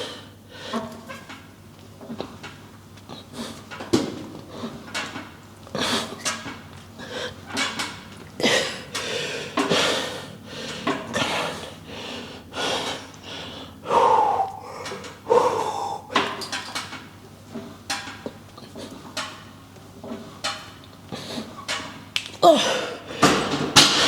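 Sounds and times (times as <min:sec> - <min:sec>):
man breathing hard: 0:08.4 - 0:16.6, 0:22.4 - 0:24.0.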